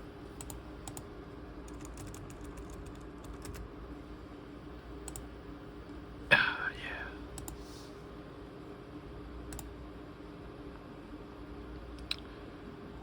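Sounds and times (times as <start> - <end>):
low steady hum: 0.0 - 13.0
laptop keyboard typing: 0.4 - 1.1, 1.7 - 3.7, 5.0 - 5.3.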